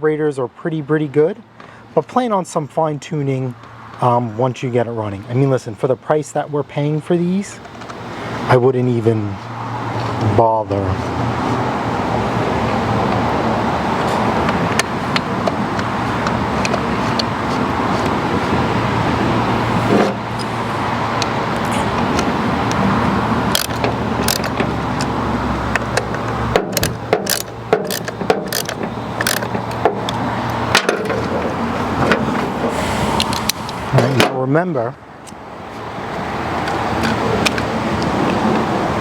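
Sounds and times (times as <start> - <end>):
motor vehicle rumble: 7.5 - 39.0
small plastic parts clicking: 23.5 - 25.1, 25.7 - 31.0.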